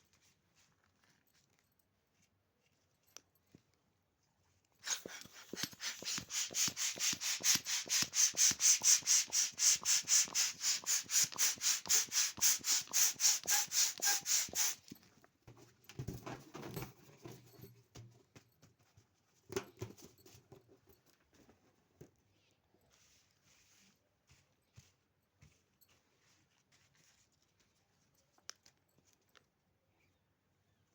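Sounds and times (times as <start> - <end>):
balloon pump hissing puffs: 4.8 - 14.9
brief rubbing sounds: 4.8 - 14.9.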